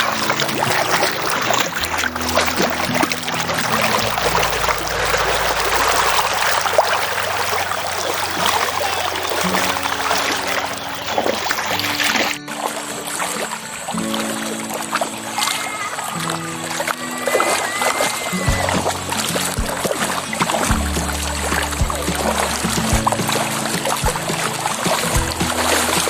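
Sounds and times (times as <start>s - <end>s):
faint background music: 0.0s - 26.0s
river water rushing: 0.0s - 26.0s.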